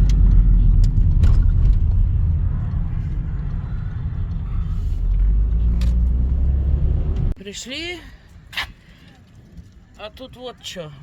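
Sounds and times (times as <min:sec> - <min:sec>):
car engine and road rumble: 0:00.0 - 0:08.0.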